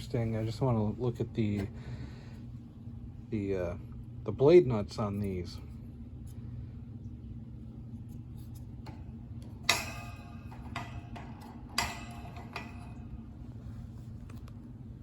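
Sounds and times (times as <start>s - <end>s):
low room hum: 0.0s - 15.0s
metal nuts clacking on hard surface: 9.4s - 13.1s.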